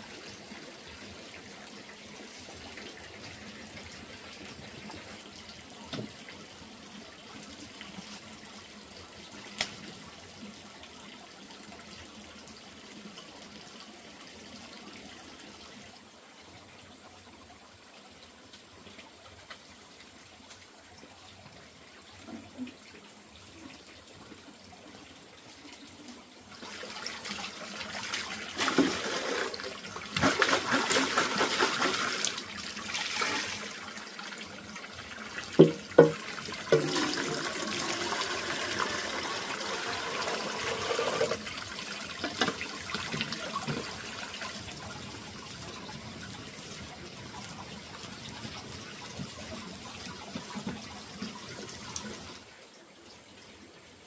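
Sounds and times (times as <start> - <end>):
water running and splashing: 17.7 - 52.6
sharp knocks: 35.6 - 37.0.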